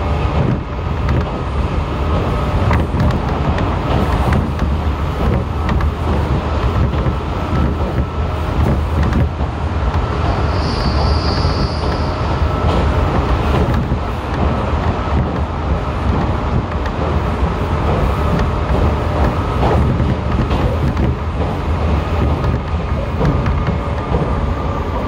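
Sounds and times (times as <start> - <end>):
train interior rumble: 0.0 - 25.0
wheels clicking over rail joints: 2.1 - 12.0, 12.6 - 25.0
high thin squeal: 10.4 - 12.6.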